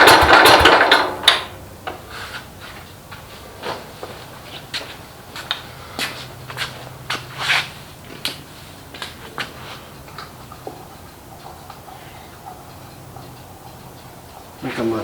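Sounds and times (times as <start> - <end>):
light irregular clicks and knocks: 8.1 - 14.9.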